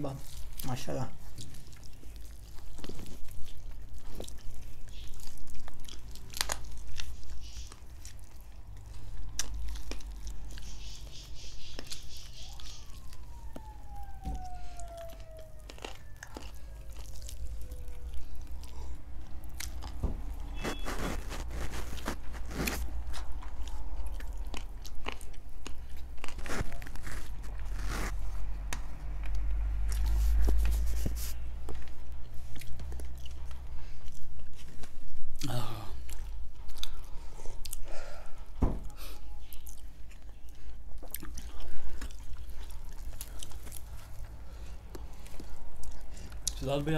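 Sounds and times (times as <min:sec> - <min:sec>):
meat tearing with wet clicks: 0:00.0 - 0:10.7, 0:11.8 - 0:20.4, 0:31.7 - 0:37.9, 0:39.4 - 0:46.7
people chewing chicken: 0:00.0 - 0:46.9.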